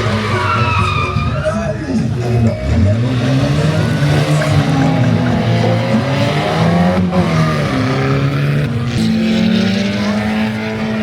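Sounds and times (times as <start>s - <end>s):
monster truck engines revving: 0.0s - 11.0s.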